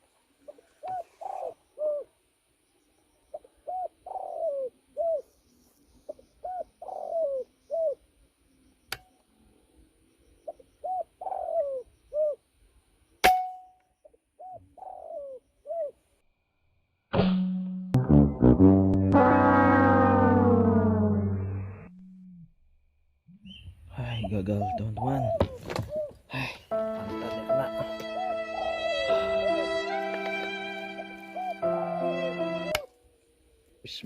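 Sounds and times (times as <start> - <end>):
dove cooing: 0.4 - 2.1, 3.3 - 5.3, 6.1 - 8.0, 10.5 - 12.4, 14.4 - 16.0, 24.6 - 26.2, 28.2 - 28.9
sharp ringing crack: 13.2 - 13.8.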